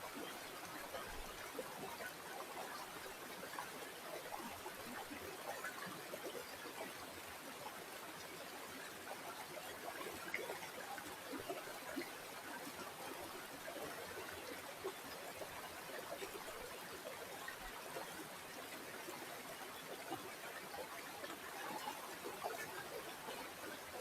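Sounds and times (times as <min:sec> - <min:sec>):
stream of water trickling: 0:00.0 - 0:24.0.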